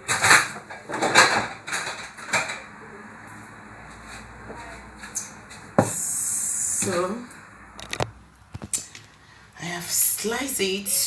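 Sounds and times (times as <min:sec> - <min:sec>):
utensils scraping and knocking: 0:00.0 - 0:02.7.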